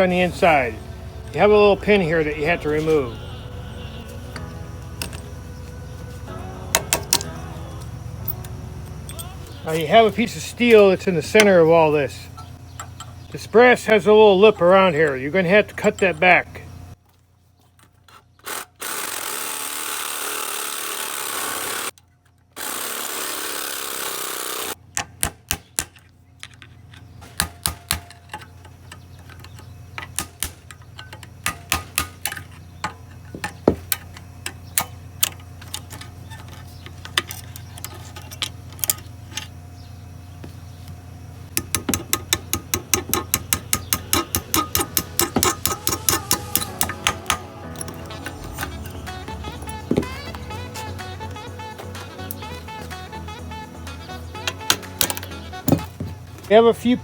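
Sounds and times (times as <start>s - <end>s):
power tool cutting brass: 18.8s - 21.9s, 22.6s - 24.8s.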